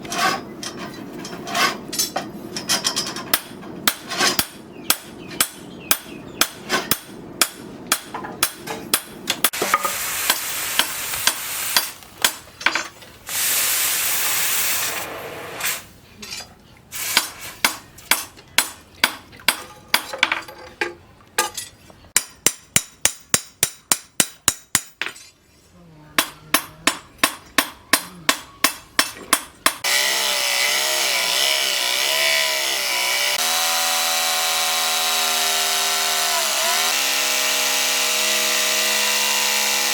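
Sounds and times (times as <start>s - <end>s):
hammer striking steel on anvil: 2.0s - 12.9s, 22.2s - 25.2s, 26.2s - 29.9s
power tool whining: 29.8s - 39.9s.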